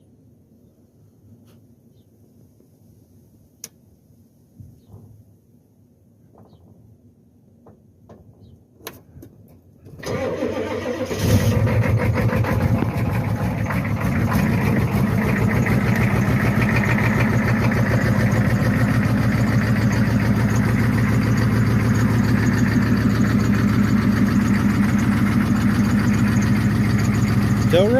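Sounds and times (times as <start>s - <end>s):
diesel engine cranking: 9.8s - 27.9s
diesel engine idling: 9.9s - 27.9s.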